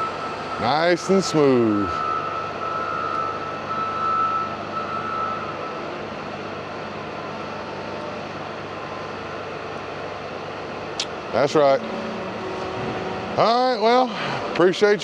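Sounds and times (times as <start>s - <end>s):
faint high whine: 11.4s - 15.0s
vehicle engine running: 11.6s - 15.0s.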